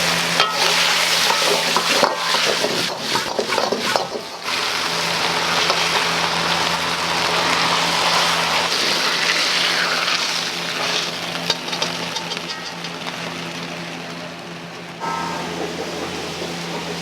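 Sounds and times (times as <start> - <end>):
food sizzling in hot oil: 0.0 - 14.0
low hum: 12.1 - 17.0.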